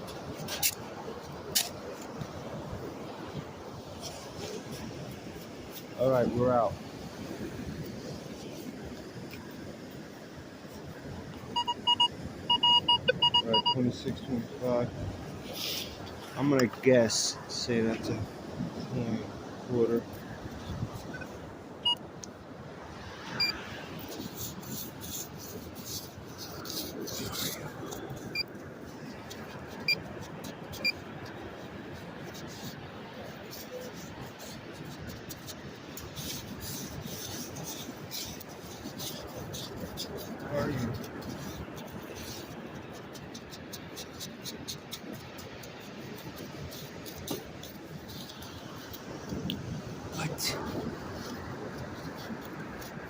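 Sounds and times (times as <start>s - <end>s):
metal detector beeping: 11.5s - 13.8s
hand scratching through sand and shells: 22.9s - 53.0s.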